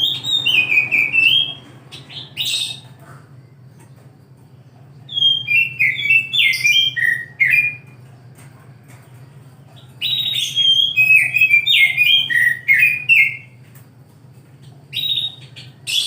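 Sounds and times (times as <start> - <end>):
bird singing whistled notes: 0.0 - 2.8, 5.1 - 7.9, 10.0 - 13.6, 14.9 - 16.0
steady low hum: 0.0 - 16.0.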